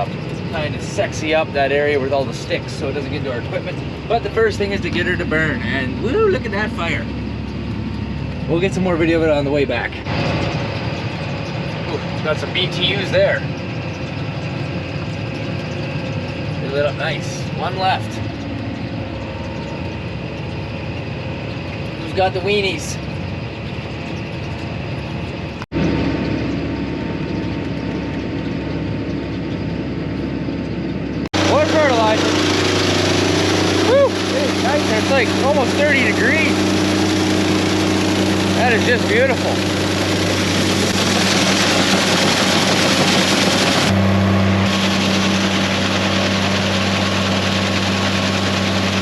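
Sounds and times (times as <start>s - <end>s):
vehicle engine droning: 0.0s - 49.0s
dense rushing noise: 31.3s - 49.0s.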